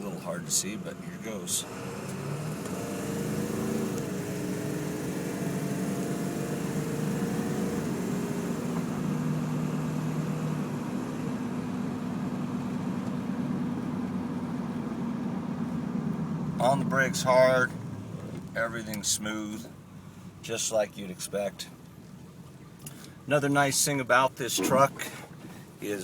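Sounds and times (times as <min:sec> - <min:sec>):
diesel truck engine accelerating: 0:00.0 - 0:20.8.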